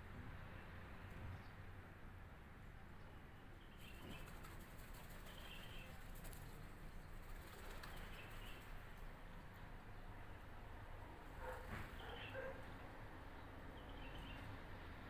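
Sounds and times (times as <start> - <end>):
faint outdoor ambience: 0.0 - 15.0
distant bird chirps: 11.4 - 12.7, 13.4 - 14.6.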